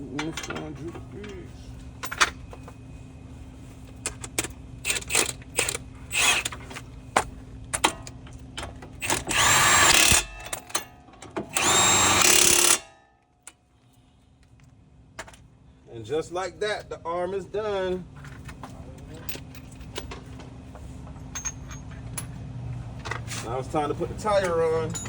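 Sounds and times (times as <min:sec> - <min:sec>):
impact wrench bursts: 0:04.8 - 0:06.6, 0:09.0 - 0:10.8, 0:11.5 - 0:13.0.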